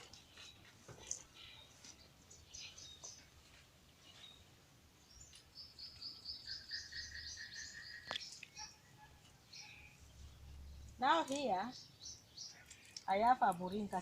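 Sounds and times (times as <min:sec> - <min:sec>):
faint bird chirps: 0:04.0 - 0:10.9
bird trill: 0:05.1 - 0:10.0.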